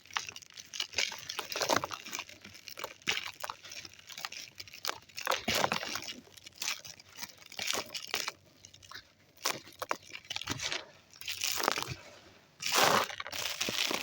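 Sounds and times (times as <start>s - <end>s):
dry sand crunching: 9.4s - 14.0s.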